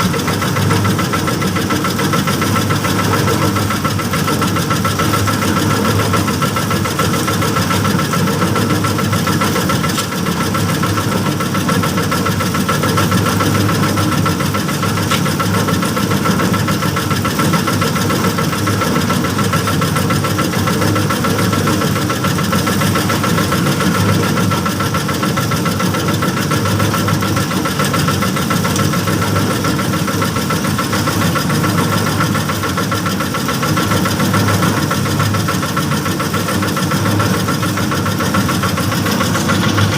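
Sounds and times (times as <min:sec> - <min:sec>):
small boat engine running: 0:00.0 - 0:39.9
high-pitched whine: 0:38.6 - 0:39.9.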